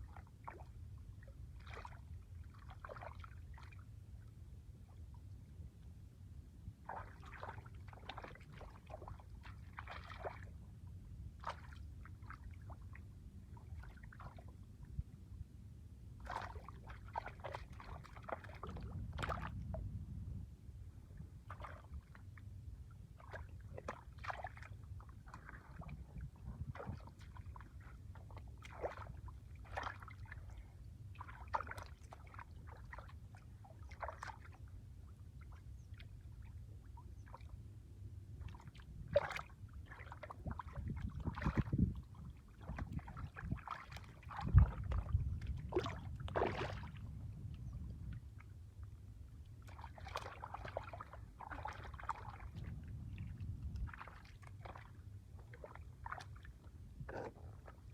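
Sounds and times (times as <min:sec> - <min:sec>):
shallow water sloshing and splashing: 0:00.0 - 0:05.6, 0:06.6 - 0:57.9
steady low rumble: 0:18.5 - 0:23.8, 0:24.7 - 0:29.6, 0:44.2 - 0:49.6, 0:52.2 - 0:56.0.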